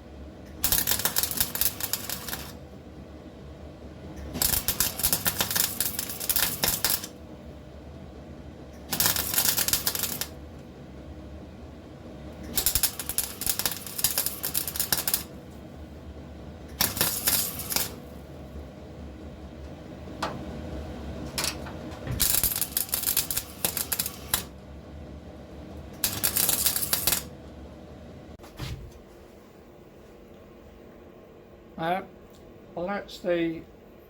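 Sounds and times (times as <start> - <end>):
crackling spitting welding: 0.5 - 2.6, 4.2 - 7.2, 8.8 - 10.4, 12.4 - 15.4, 16.7 - 18.2, 22.2 - 24.6, 25.7 - 27.4.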